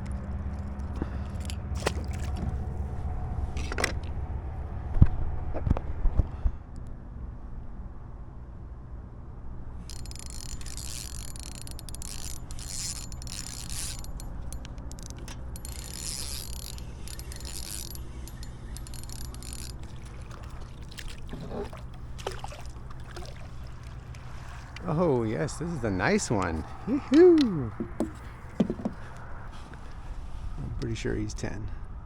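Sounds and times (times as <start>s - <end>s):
light water sounds: 0.0s - 4.1s, 9.9s - 25.2s
fishing reel whirring: 9.9s - 21.2s.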